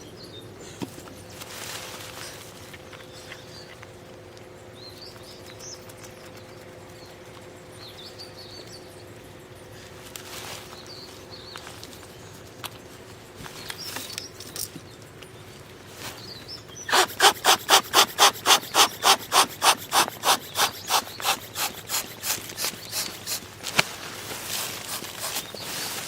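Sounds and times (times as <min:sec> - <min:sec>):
hand saw cutting wood: 0:16.9 - 0:23.8, 0:24.5 - 0:26.0.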